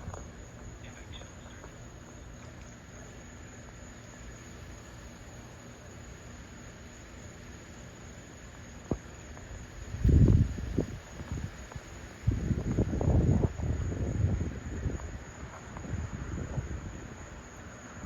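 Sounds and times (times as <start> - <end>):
wind buffeting microphone: 9.8 - 17.5.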